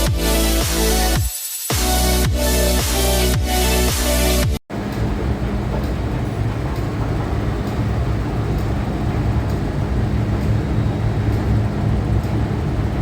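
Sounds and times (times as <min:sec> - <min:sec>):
constant hum: 0:04.7 - 0:13.0
train rumbling: 0:04.7 - 0:13.0.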